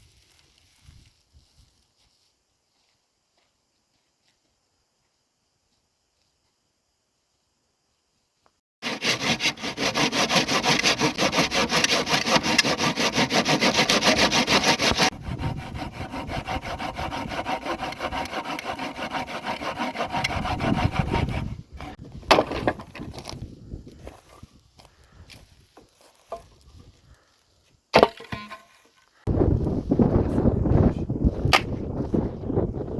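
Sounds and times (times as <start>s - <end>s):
hand saw cutting wood: 8.8s - 22.8s.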